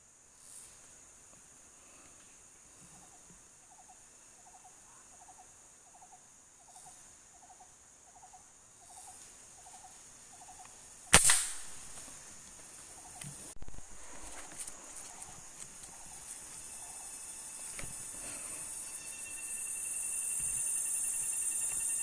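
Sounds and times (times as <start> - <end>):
air rifle shot: 11.1 - 11.8.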